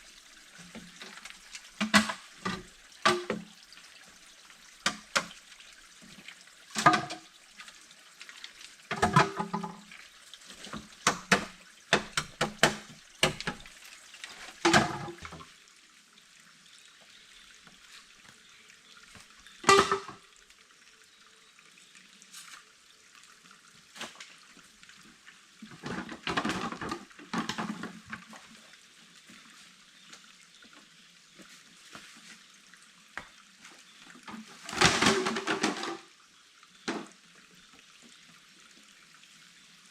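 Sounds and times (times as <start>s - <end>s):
water splashing and sloshing: 0.0s - 15.6s, 23.7s - 32.7s, 33.6s - 36.2s
running water hiss: 0.0s - 39.9s.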